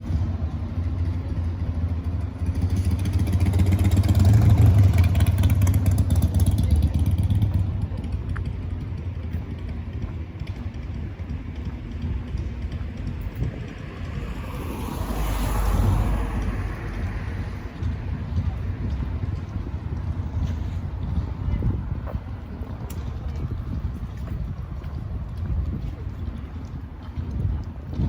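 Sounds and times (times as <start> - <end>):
vehicle passing: 12.6 - 20.0.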